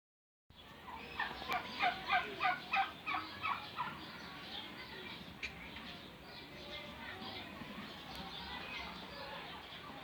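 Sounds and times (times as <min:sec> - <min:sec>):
turkey gobbling: 0:01.1 - 0:04.0.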